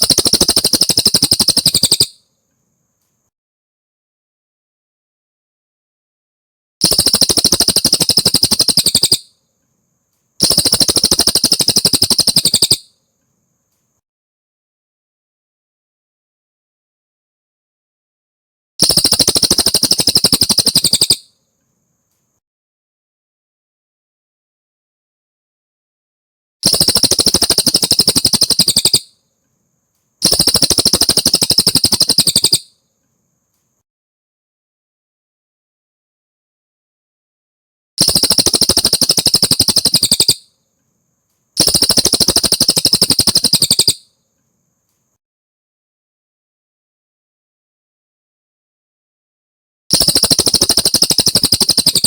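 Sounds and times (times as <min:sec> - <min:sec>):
bird singing fast trills: 0:00.0 - 0:02.2, 0:06.8 - 0:09.3, 0:10.4 - 0:12.9, 0:18.8 - 0:21.3, 0:26.6 - 0:29.1, 0:30.2 - 0:32.7, 0:38.0 - 0:40.5, 0:41.6 - 0:44.0, 0:49.9 - 0:52.0.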